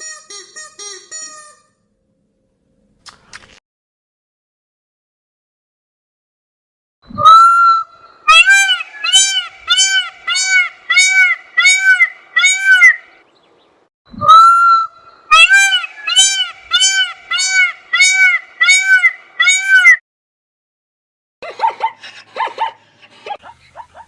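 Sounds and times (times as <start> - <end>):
bird honking call: 8.3 - 13.1, 15.3 - 20.0.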